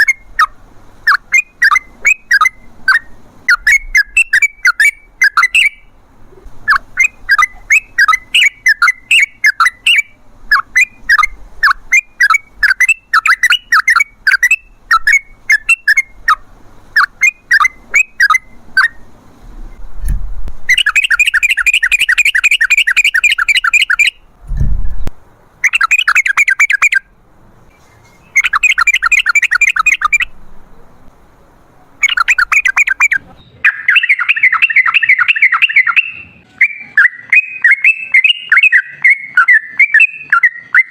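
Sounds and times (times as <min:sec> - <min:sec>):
bird singing chirps and runs: 0:20.7 - 0:24.2, 0:27.8 - 0:30.4, 0:32.0 - 0:40.9.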